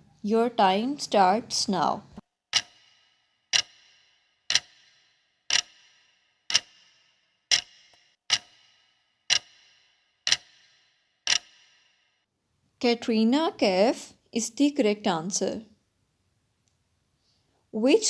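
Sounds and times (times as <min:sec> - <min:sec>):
clock ticking: 0:00.6 - 0:11.8.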